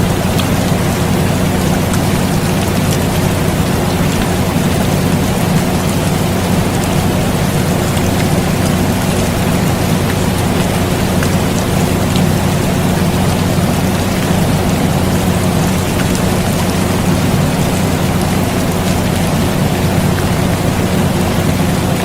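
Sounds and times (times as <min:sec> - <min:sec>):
air conditioner hum: 0:00.0 - 0:22.0
rain falling: 0:00.0 - 0:22.0.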